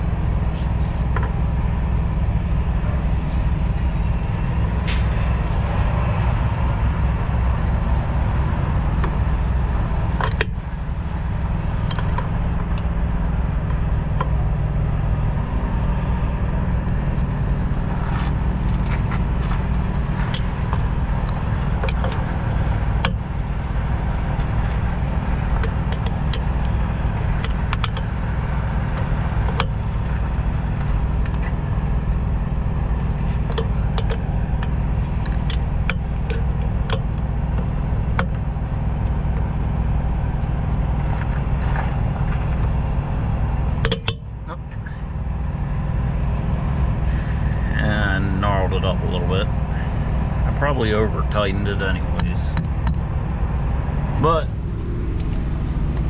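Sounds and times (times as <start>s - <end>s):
diesel truck engine idling: 0.0s - 56.0s
hand tools tapping on metal: 20.0s - 23.2s, 24.2s - 28.2s, 28.8s - 29.8s, 33.2s - 38.5s, 43.8s - 44.2s, 52.0s - 53.0s.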